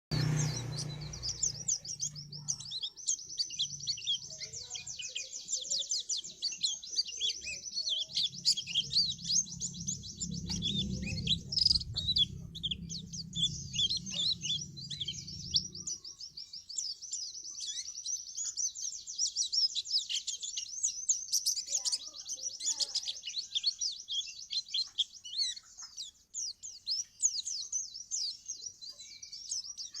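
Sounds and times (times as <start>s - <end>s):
low hum: 0.1s - 2.6s, 8.3s - 16.3s
bird twittering song: 0.1s - 30.0s.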